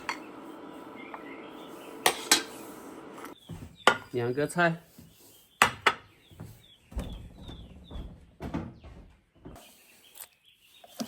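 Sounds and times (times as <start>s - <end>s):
small bird chirping: 3.3s - 11.0s.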